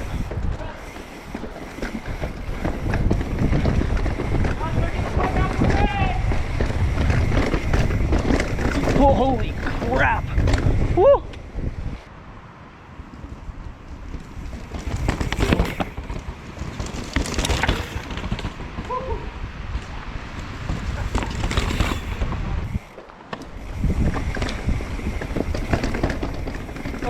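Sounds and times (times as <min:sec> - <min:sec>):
mountain bike rattling over rocks: 0:00.0 - 0:11.0, 0:13.9 - 0:27.0
wind buffeting microphone: 0:00.0 - 0:27.0
wheels and frame knocking on rock: 0:00.1 - 0:10.7, 0:14.7 - 0:19.0, 0:24.0 - 0:27.0.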